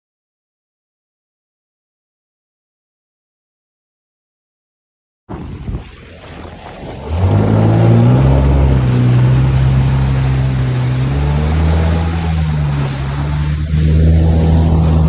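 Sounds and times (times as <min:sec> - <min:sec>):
jet ski engine running: 0:05.3 - 0:15.0.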